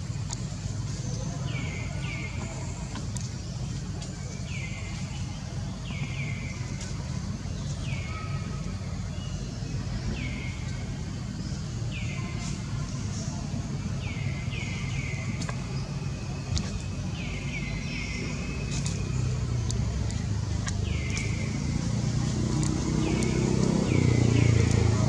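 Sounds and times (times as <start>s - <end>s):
steady low rumble: 0.0s - 25.0s
faint clicks: 18.7s - 21.4s, 22.5s - 23.4s.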